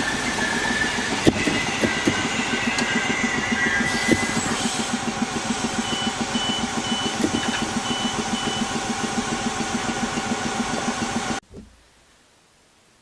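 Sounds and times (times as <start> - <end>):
diesel train engine idling: 0.0 - 11.4
high warning beeps: 5.8 - 8.8.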